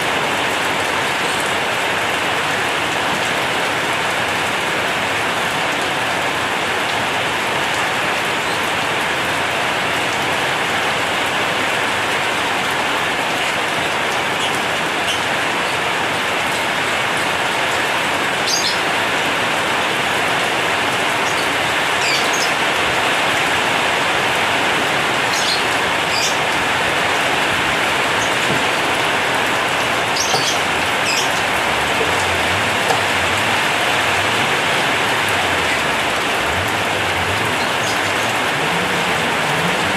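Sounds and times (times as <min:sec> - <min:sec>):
heavy rain on a metal roof: 0:00.0 - 0:39.9
water drip ticks: 0:27.8 - 0:33.8.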